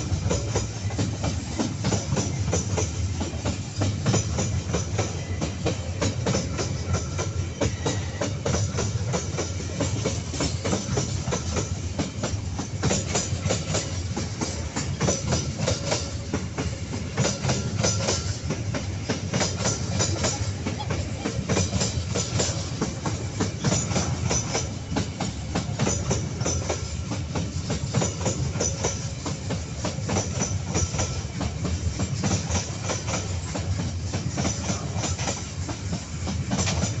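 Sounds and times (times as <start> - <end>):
low train rumble: 0.0 - 37.0
train wheels clacking over rail joints: 0.0 - 37.0.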